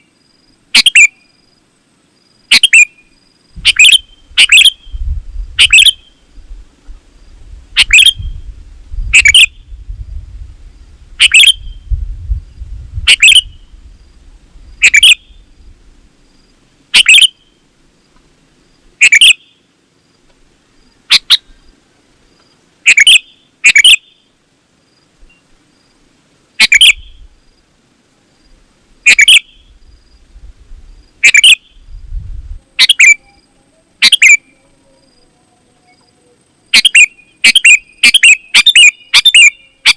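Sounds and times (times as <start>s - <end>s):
bird chirping: 0.7s - 1.5s, 2.4s - 6.4s, 7.7s - 8.5s, 9.1s - 9.8s, 11.2s - 11.9s, 13.1s - 13.8s, 14.8s - 15.7s, 16.4s - 17.6s, 19.0s - 19.7s, 20.8s - 21.7s, 22.4s - 24.4s, 26.6s - 27.3s, 29.0s - 30.2s, 31.0s - 32.0s, 32.8s - 39.9s.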